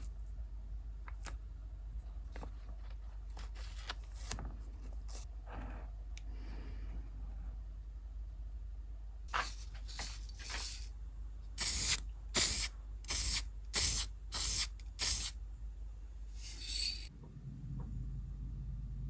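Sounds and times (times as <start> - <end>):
aerosol spray can hissing: 11.6 - 15.3.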